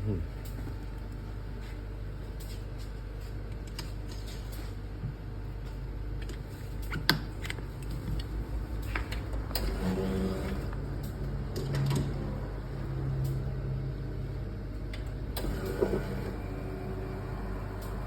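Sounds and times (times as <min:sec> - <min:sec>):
espresso machine pump humming: 0:07.8 - 0:11.5, 0:15.3 - 0:18.0.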